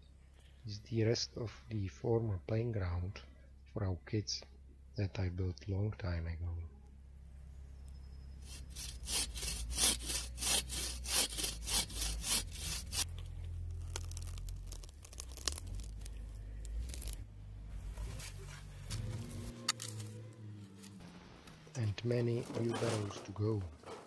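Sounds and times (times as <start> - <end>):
saw cutting wood: 8.4 - 13.2, 18.8 - 24.0.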